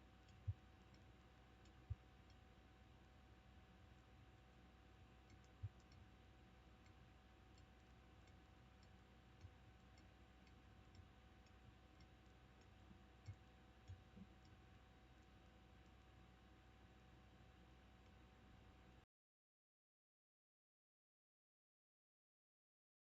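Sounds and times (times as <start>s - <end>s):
faint steady hum: 0.0s - 19.1s
faint ticks: 0.1s - 16.2s.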